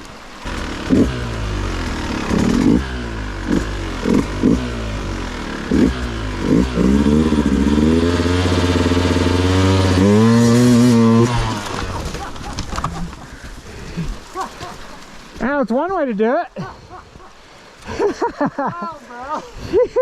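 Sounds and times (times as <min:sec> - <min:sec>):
dirt bike engine revving: 0:00.0 - 0:12.6.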